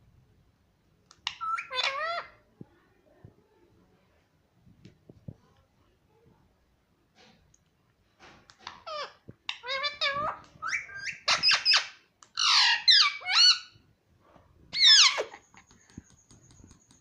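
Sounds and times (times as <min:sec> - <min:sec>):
parrot chirping and whistling: 0:10.6 - 0:13.7.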